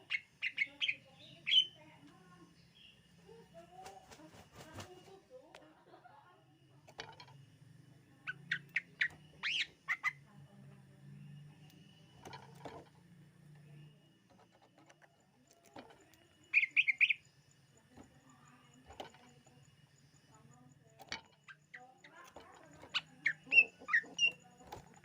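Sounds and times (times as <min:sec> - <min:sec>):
faint low hum: 0:00.0 - 0:25.0
bird chirping sharply: 0:16.5 - 0:17.2.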